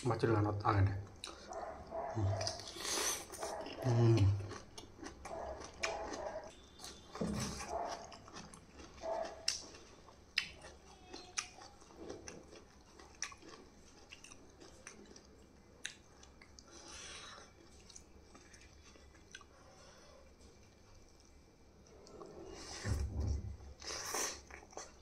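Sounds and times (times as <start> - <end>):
person chewing crunchy food: 1.1 - 19.8, 23.7 - 25.0.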